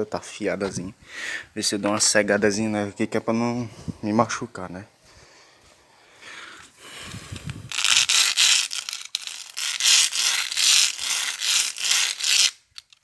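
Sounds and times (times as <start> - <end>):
razor blade scraping rough surface: 7.8 - 12.6.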